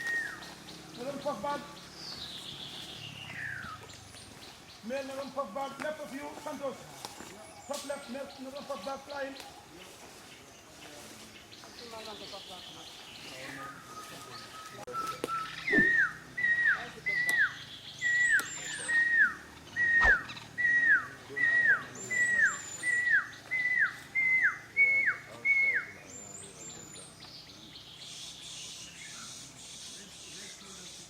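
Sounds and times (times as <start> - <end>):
faint high bird chirps: 11.8 - 31.0
bird whistling downslurred notes: 14.9 - 25.9.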